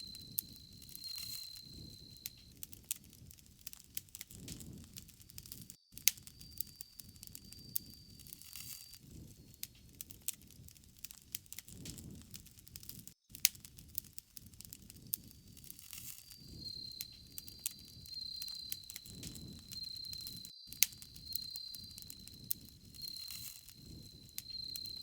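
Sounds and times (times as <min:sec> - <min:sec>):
thin steady high tone: 0:00.0 - 0:02.5, 0:06.2 - 0:09.0, 0:16.0 - 0:25.0
campfire crackling: 0:00.0 - 0:25.0.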